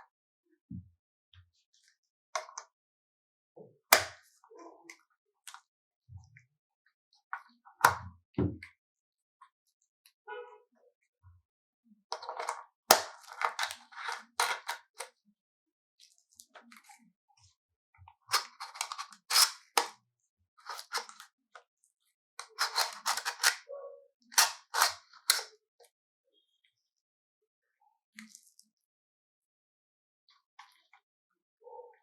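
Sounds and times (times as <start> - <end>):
phone holder clicks and rattles: 12.2 - 15.1, 18.3 - 19.9, 20.7 - 21.2, 22.4 - 23.6, 24.4 - 25.5
sharp plastic snap: 18.3 - 19.9, 22.4 - 23.6, 24.4 - 25.5.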